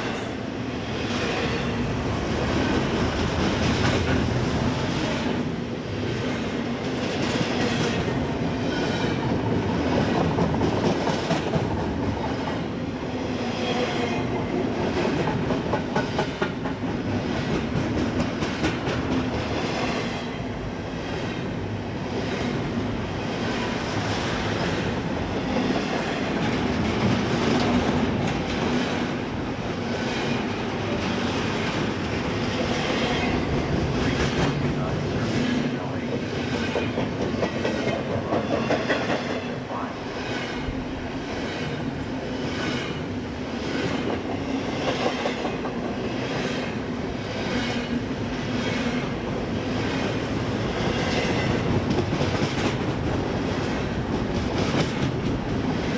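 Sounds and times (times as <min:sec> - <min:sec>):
freight train wheels clacking: 0:00.0 - 0:12.6, 0:13.8 - 0:20.3, 0:23.5 - 0:55.9.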